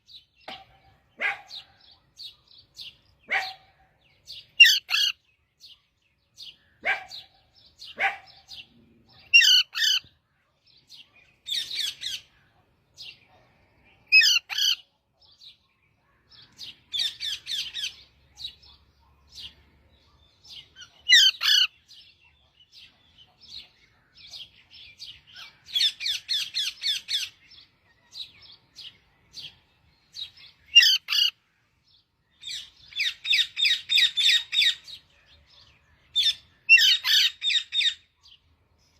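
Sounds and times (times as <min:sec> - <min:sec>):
parrot chirping and chattering: 0:04.5 - 0:05.2, 0:07.9 - 0:10.1, 0:11.4 - 0:12.3, 0:14.1 - 0:14.8, 0:16.9 - 0:18.9, 0:20.6 - 0:21.8, 0:25.3 - 0:27.4, 0:30.6 - 0:31.4, 0:32.4 - 0:34.9, 0:36.2 - 0:38.1.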